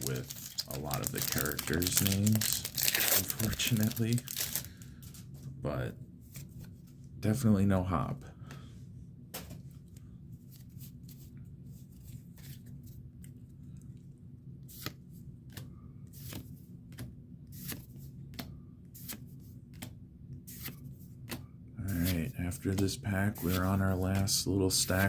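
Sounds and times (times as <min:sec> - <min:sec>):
cards snapping and rustling: 0:00.0 - 0:05.2, 0:14.7 - 0:21.4
low steady hum: 0:00.0 - 0:25.0.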